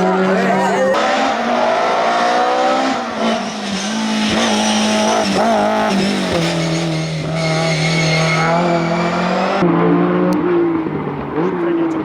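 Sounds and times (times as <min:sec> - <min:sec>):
rally car engine at high revs: 0:00.0 - 0:12.0
tyres squealing: 0:00.4 - 0:09.6.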